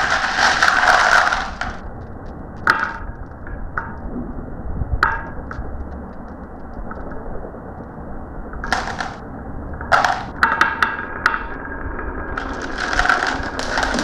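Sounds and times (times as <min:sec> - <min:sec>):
marbles rolling on a track: 0:00.0 - 0:04.0, 0:08.6 - 0:09.2, 0:09.8 - 0:14.0
marbles clicking on track: 0:00.0 - 0:04.1, 0:08.6 - 0:09.2, 0:09.8 - 0:11.7, 0:12.3 - 0:14.0.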